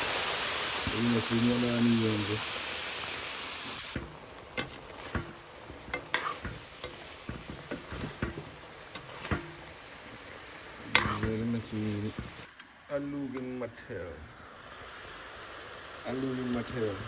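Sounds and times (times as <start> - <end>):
faint sizzle: 0.0 - 17.0
utensil stirring in a pot: 3.9 - 12.5.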